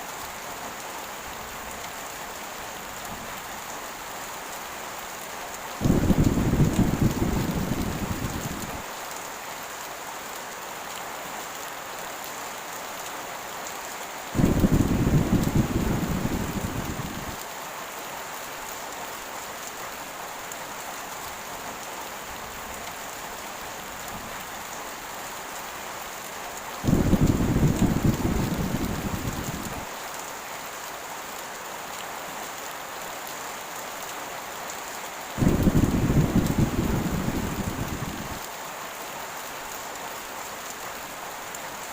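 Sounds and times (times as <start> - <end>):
heavy rain hissing: 1.3 - 9.6, 14.0 - 18.4, 22.2 - 30.5, 35.0 - 41.8
thunder rumbling: 5.8 - 8.8, 14.4 - 17.4, 26.8 - 29.9, 35.4 - 38.4.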